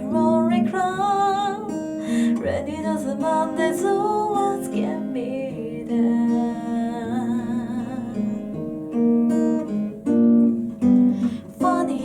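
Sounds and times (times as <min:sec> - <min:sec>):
woman singing with vibrato: 0:00.0 - 0:08.6, 0:11.4 - 0:12.0
acoustic guitar strumming: 0:00.0 - 0:12.0.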